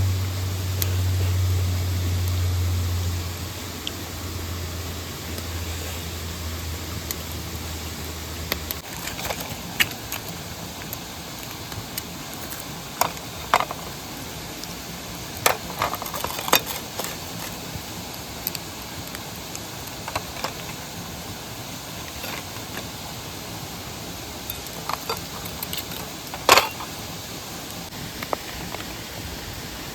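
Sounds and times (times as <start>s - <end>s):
low hum: 0.0s - 11.6s
mountain stream rushing: 0.0s - 29.9s.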